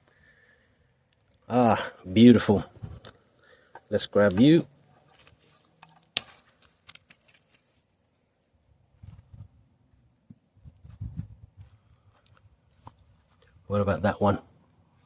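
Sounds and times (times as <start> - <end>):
plants rustling: 2.3 - 8.4
stem snapping: 3.0 - 3.2, 5.2 - 7.6.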